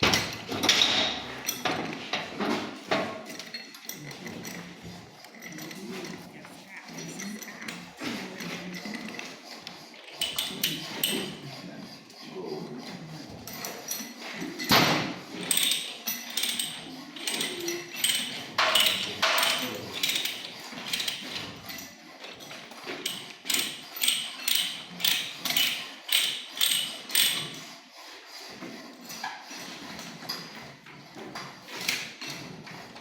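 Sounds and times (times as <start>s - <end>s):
die cutting pipe thread: 7.2s - 33.0s
ratchet clicks: 23.1s - 27.5s.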